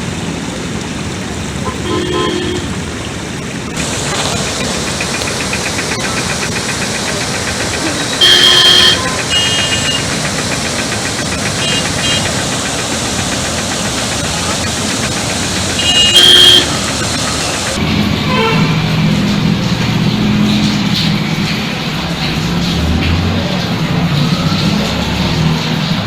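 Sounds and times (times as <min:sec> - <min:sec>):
vehicle engine running: 0:00.0 - 0:26.0
loud steady tone: 0:01.6 - 0:02.8, 0:03.8 - 0:19.2.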